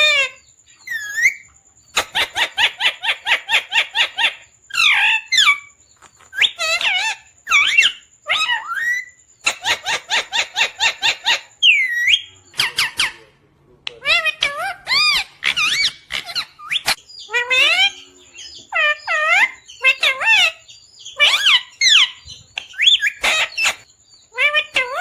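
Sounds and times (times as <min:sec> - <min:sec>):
parrot calling loudly: 0:06.4 - 0:13.2, 0:14.0 - 0:25.0.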